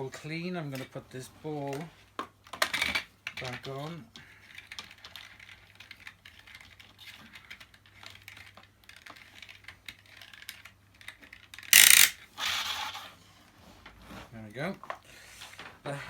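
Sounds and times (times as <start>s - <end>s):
loud plastic clack: 11.6s - 12.6s.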